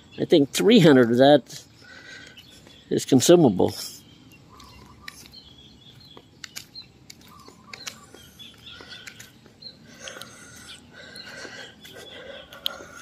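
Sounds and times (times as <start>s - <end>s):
birds chirping: 0.0s - 13.0s
light clicks: 6.2s - 8.2s, 8.8s - 9.4s.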